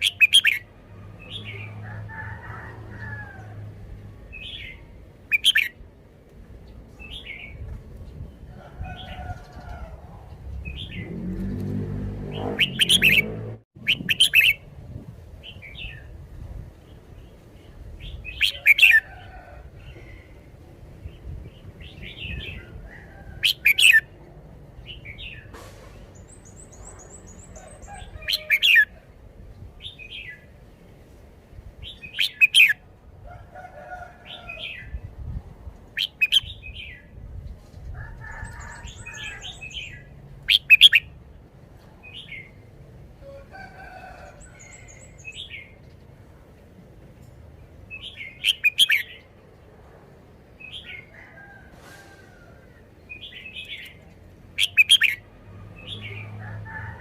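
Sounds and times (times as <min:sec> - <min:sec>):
bird chattering calls: 0:00.0 - 0:00.6, 0:05.3 - 0:05.7, 0:12.4 - 0:14.6.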